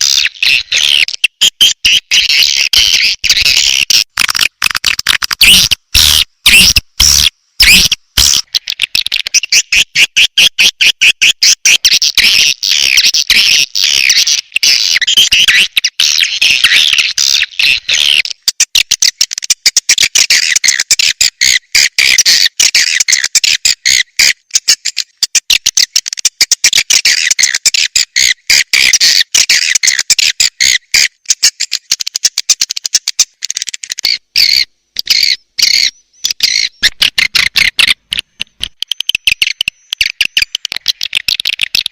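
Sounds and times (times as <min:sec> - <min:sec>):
swiftlet chattering twitters: 0:26.8 - 0:41.9.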